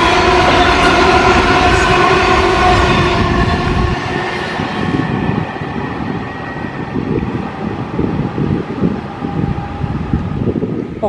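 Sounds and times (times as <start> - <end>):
electric train passing: 0.0 - 11.0
train whine: 0.0 - 11.0.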